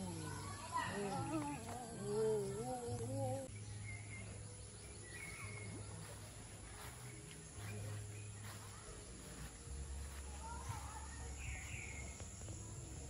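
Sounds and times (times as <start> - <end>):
faint garden ambience: 0.0 - 13.0
bird chirps: 0.1 - 7.0.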